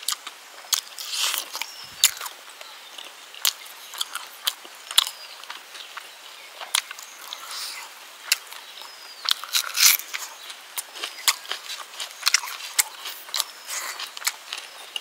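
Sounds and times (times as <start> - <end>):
chewing food: 0.0 - 15.0.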